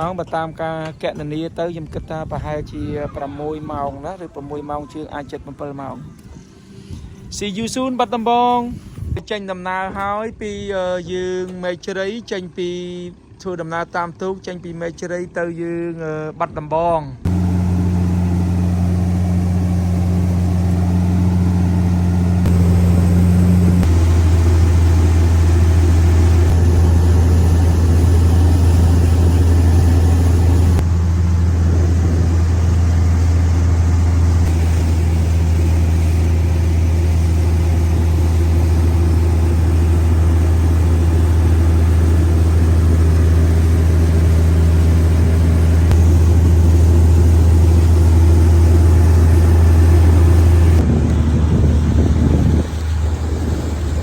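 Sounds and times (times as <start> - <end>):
speedboat engine drone: 11.8 - 15.8, 17.3 - 54.0.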